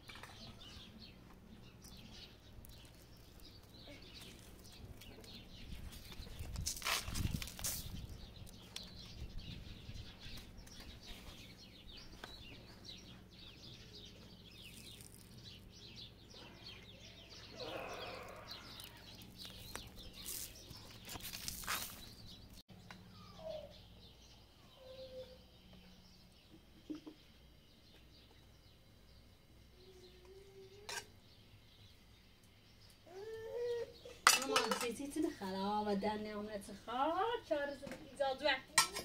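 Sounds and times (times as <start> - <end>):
small birds chirping: 0.0 - 39.0
stones and soil being dug: 1.7 - 8.9, 14.0 - 16.2, 17.6 - 22.6.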